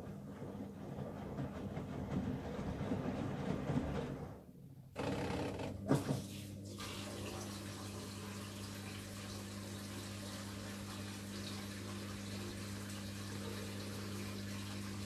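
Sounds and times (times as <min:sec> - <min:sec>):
washing machine drum turning: 0:00.0 - 0:06.4
water running into machine: 0:05.8 - 0:15.0.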